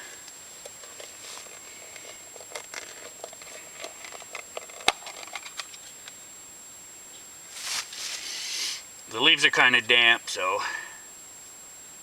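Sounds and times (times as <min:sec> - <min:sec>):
rustling of tinder in hands: 0:00.0 - 0:05.8, 0:07.5 - 0:08.5.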